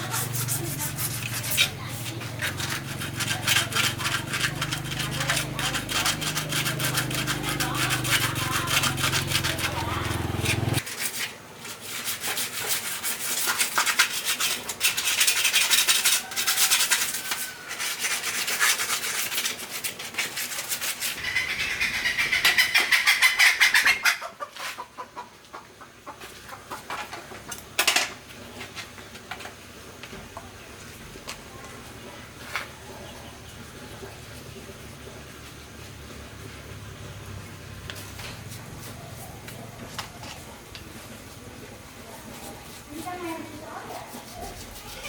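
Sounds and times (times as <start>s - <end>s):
rubbing and scraping strokes: 0.0s - 24.8s, 37.9s - 45.0s.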